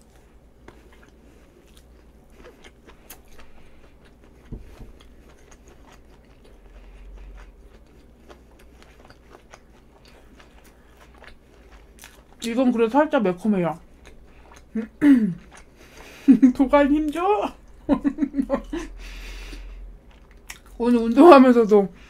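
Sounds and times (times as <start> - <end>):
chewing with mouth closed: 0.0 - 12.5, 13.8 - 16.3, 19.5 - 20.8.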